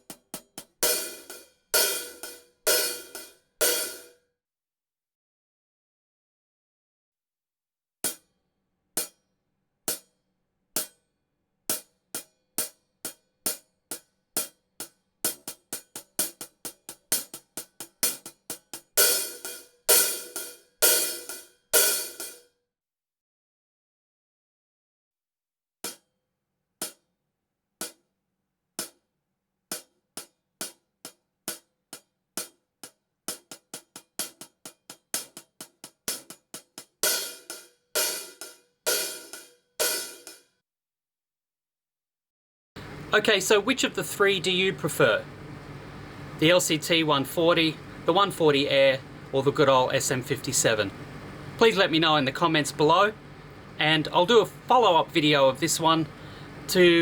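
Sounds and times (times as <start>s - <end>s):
hi-hat struck with a drumstick: 0.0s - 4.2s, 9.9s - 10.1s, 11.7s - 22.4s, 26.8s - 27.0s, 29.7s - 40.5s.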